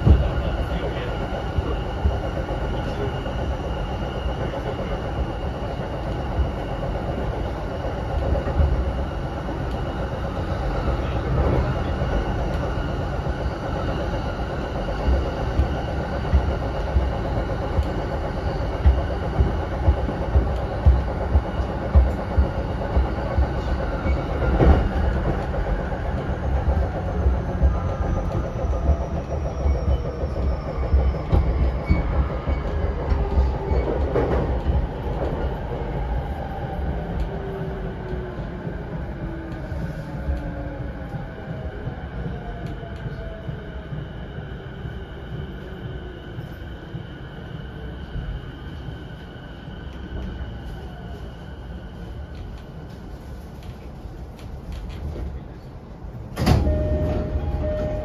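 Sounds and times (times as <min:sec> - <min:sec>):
train rumble inside car: 0:00.0 - 0:58.0
train motor whine: 0:56.4 - 0:58.0.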